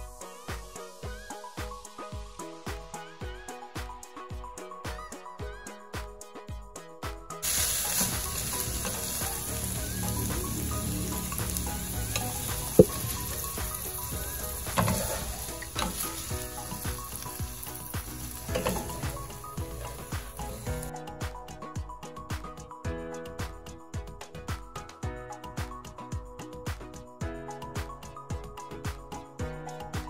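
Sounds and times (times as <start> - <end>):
music with a steady beat: 0.0 - 30.0
food sizzling in oil: 7.4 - 20.9
spatula scraping a pan: 11.2 - 20.6.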